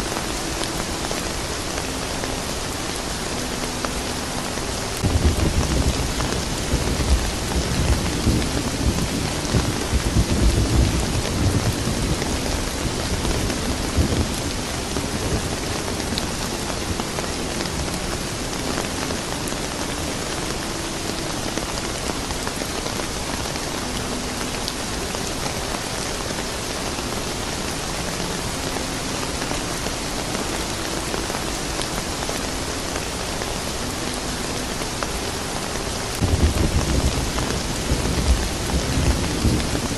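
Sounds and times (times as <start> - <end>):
steady rain falling: 0.0 - 39.9
thunder rumbling: 5.0 - 19.8, 36.2 - 39.9.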